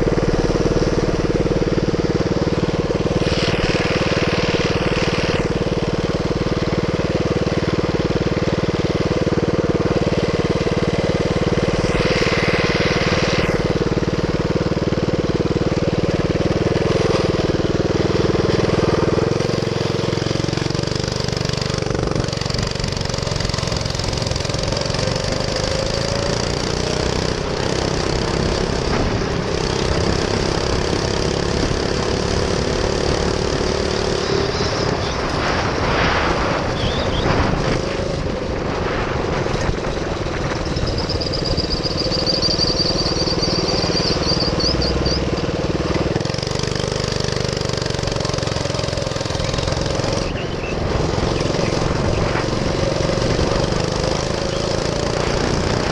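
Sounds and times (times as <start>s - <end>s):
minibike engine revving: 0.0s - 55.9s
wind and road noise: 0.0s - 55.9s
high thin whine: 11.0s - 14.7s.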